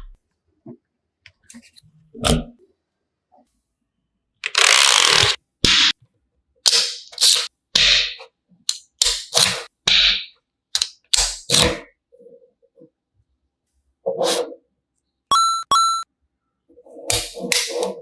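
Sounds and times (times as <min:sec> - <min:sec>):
plastic building pieces clacking: 0:04.4 - 0:05.4.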